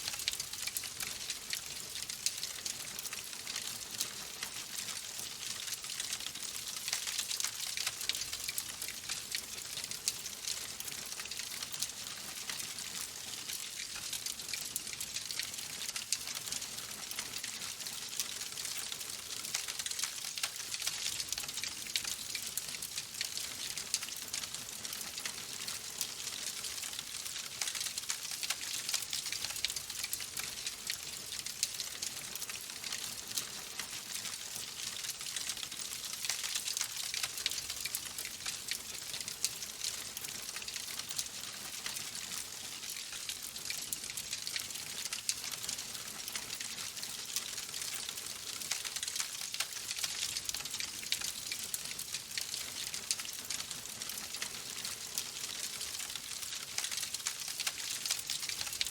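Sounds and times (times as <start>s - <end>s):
logs crackling in fireplace: 0.1s - 58.9s.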